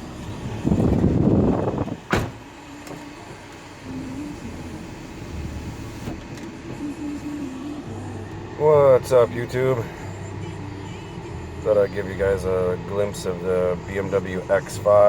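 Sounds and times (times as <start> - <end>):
car engine hum: 0.0 - 15.0
sharp thump: 2.0 - 2.5.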